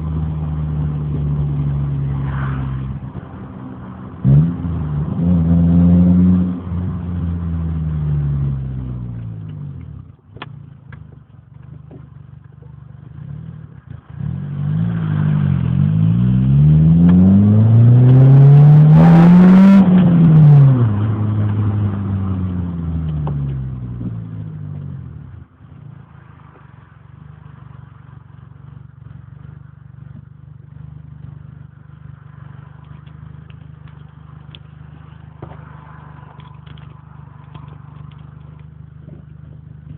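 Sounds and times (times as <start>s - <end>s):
faint steady rumble: 0.0s - 18.8s, 19.9s - 39.9s
car driving by loudly: 1.4s - 7.0s, 34.8s - 38.6s.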